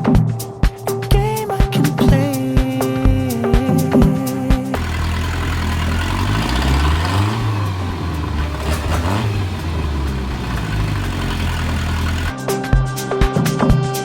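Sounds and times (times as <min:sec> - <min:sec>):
boat engine revving: 0:04.8 - 0:12.4.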